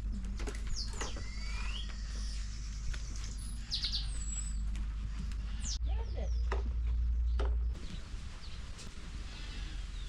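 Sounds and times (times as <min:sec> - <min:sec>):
steady low rumble: 0:00.0 - 0:10.0
birds whistling and chirping: 0:00.5 - 0:04.8.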